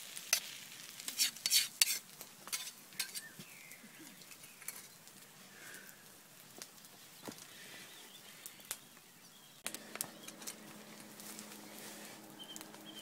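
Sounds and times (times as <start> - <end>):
omelette sizzling: 0.0 - 13.0
utensil scraping frying pan: 0.2 - 3.3.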